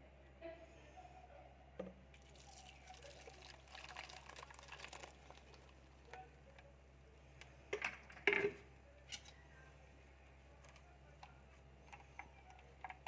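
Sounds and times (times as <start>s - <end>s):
low steady hum: 0.0s - 13.0s
liquid being poured: 2.2s - 6.1s.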